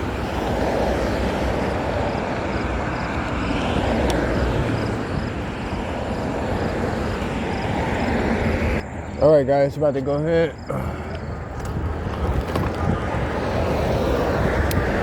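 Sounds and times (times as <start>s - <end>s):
vehicle passing: 0.0s - 15.0s.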